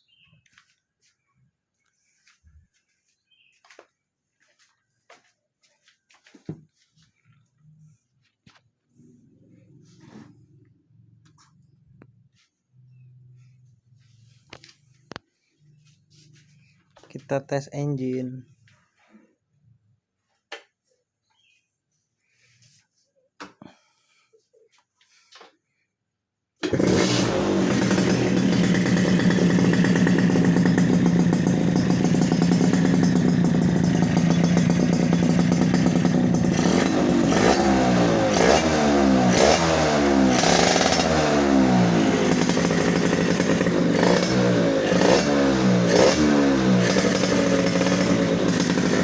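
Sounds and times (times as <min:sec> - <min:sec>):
motorcycle engine idling and revving: 0:08.4 - 0:16.5, 0:26.6 - 0:49.0.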